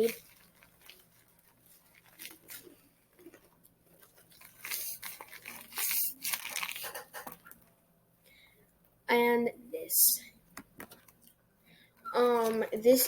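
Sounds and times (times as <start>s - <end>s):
squishy toy crunching and crinkling: 0.0s - 7.4s.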